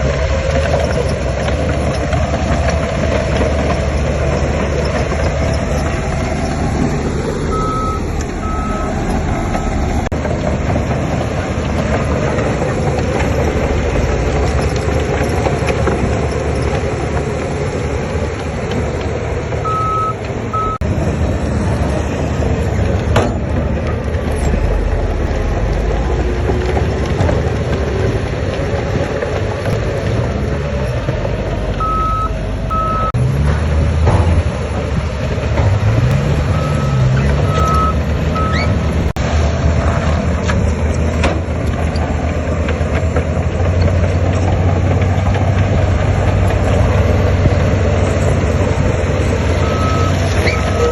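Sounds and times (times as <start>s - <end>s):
heavy diesel machinery running: 0.0s - 50.9s
reversing alarm beeps: 7.5s - 9.9s, 19.7s - 20.8s, 31.8s - 33.2s, 36.5s - 38.7s, 49.6s - 50.9s.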